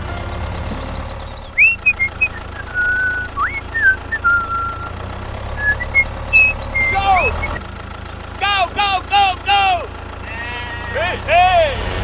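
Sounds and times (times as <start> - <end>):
person whistling: 1.6 - 4.8.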